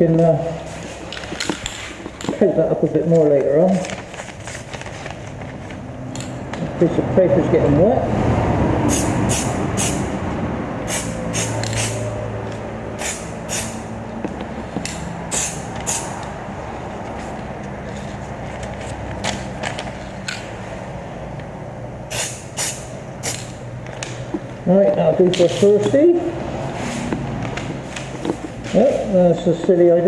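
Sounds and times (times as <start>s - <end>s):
fan humming: 0.0s - 30.0s
spray paint can hissing: 8.9s - 10.0s, 10.9s - 12.1s, 13.0s - 13.9s, 15.3s - 16.2s, 22.1s - 23.6s.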